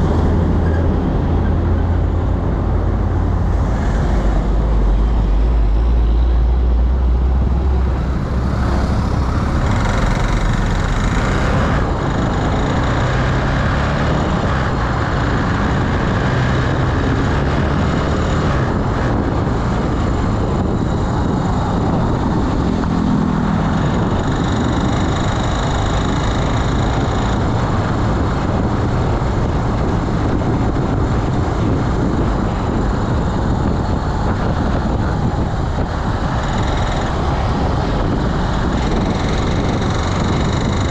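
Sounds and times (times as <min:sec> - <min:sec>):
wind and road noise: 0:00.0 - 0:40.9
scooter engine running: 0:32.7 - 0:40.9.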